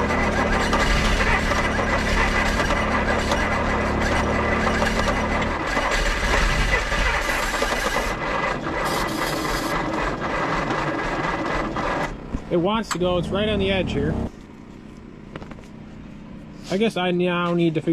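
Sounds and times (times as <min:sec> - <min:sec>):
engine cranking on starter: 0:00.0 - 0:12.3.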